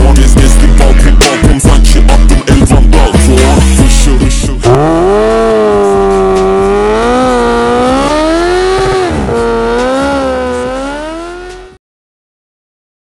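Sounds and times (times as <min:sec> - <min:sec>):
motorcycle engine high revs: 0:04.6 - 0:11.8.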